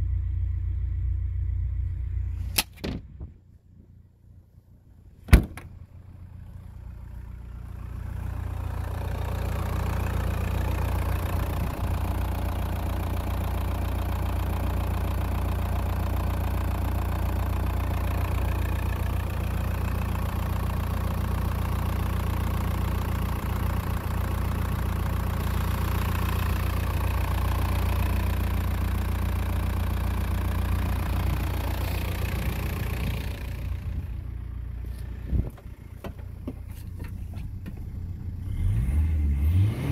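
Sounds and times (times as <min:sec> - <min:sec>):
diesel engine idling with clatter: 0:00.0 - 0:39.9
sharp click: 0:02.5 - 0:03.0.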